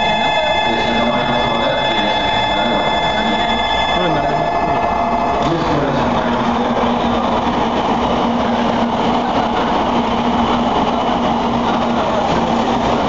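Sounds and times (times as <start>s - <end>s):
low hum: 0.0s - 7.5s
rumble of wheels on rail: 0.0s - 13.0s.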